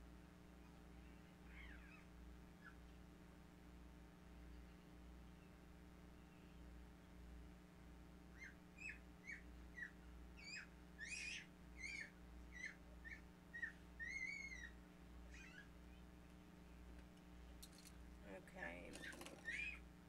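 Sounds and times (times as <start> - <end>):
faint electrical hum: 0.0 - 20.0
bird chirping: 8.3 - 16.8, 18.6 - 19.9.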